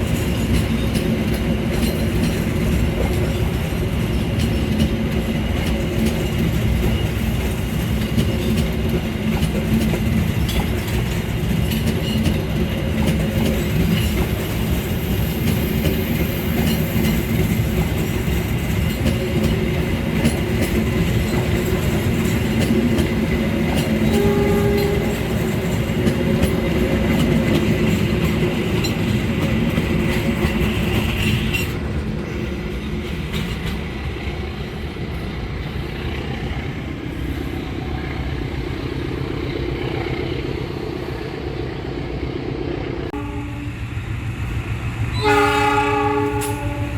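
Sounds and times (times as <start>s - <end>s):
train wheels rumbling on rails: 0.0s - 46.9s
train horn: 24.0s - 25.5s, 43.1s - 43.8s, 45.1s - 46.9s.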